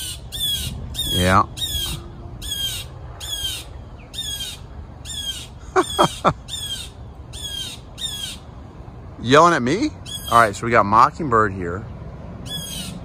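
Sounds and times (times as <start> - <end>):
bird scolding calls: 0.0 - 8.5, 10.0 - 10.5, 12.4 - 13.0.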